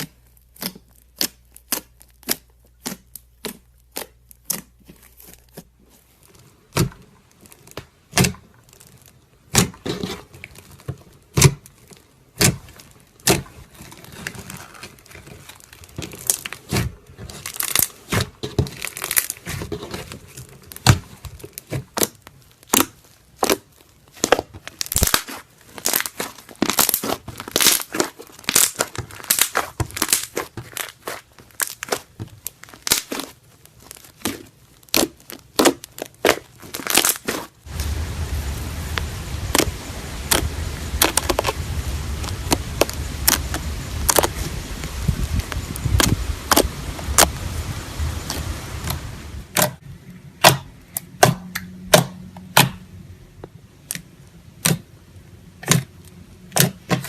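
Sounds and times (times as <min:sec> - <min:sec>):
slime clicking and popping: 0:00.0 - 0:05.4, 0:07.6 - 0:09.9, 0:11.3 - 0:13.5, 0:15.6 - 0:19.6, 0:20.7 - 0:37.5, 0:39.0 - 0:41.6, 0:42.2 - 0:44.5, 0:45.4 - 0:47.3, 0:53.8 - 0:54.9, 0:55.6 - 0:55.9
steady low hum: 0:37.7 - 0:50.4.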